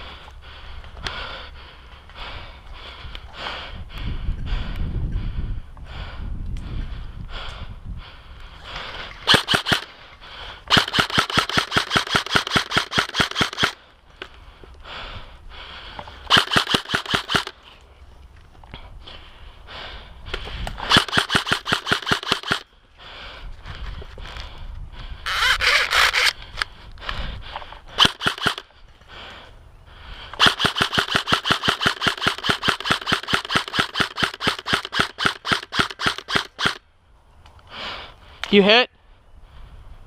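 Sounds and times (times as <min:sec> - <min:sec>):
airsoft gun firing full auto: 0:09.2 - 0:09.9, 0:10.7 - 0:13.8, 0:16.3 - 0:17.6, 0:20.8 - 0:22.6, 0:28.0 - 0:28.6, 0:30.4 - 0:36.8.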